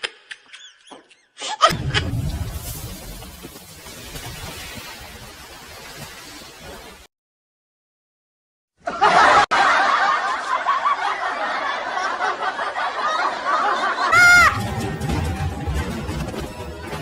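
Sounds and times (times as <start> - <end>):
group of people laughing: 8.8 - 15.1.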